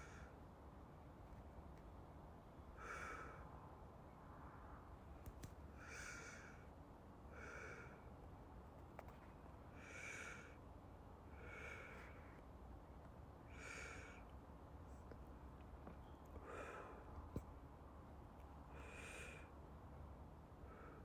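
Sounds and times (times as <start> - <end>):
faint low hum: 0.0 - 21.0
soft slow breathing: 2.8 - 3.6, 5.7 - 8.2, 9.7 - 10.6, 11.2 - 12.6, 13.4 - 15.2, 16.0 - 17.5, 18.6 - 19.6, 20.5 - 21.0.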